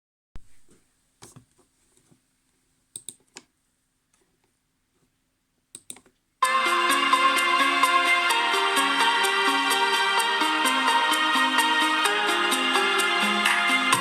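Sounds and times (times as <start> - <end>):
electronic pop music: 6.4 - 14.0.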